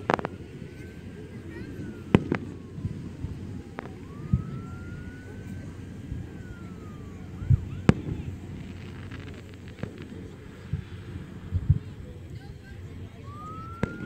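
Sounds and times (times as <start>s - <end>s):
firework sharp bang: 0.0s - 0.8s
siren wail: 0.0s - 11.5s, 13.0s - 14.0s
fireworks booming: 0.0s - 14.0s.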